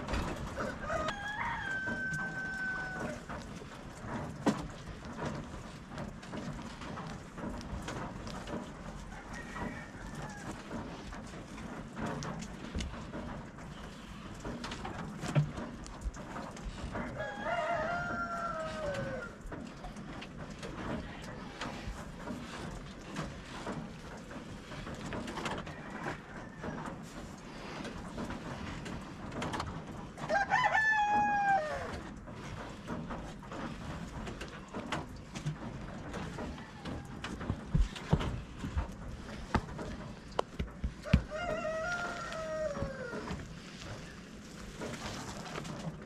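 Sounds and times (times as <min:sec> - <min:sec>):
rooster crowing: 0:00.6 - 0:03.3, 0:09.1 - 0:10.8, 0:17.0 - 0:19.4, 0:30.2 - 0:32.1, 0:41.0 - 0:43.4.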